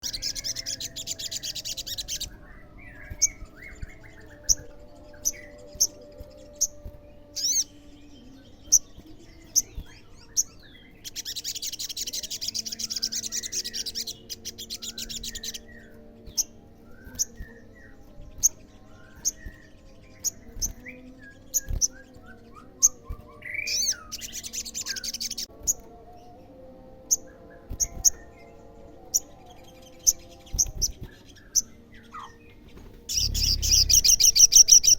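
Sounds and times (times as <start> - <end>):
bird chips and buzzy trills: 32.2 - 34.9.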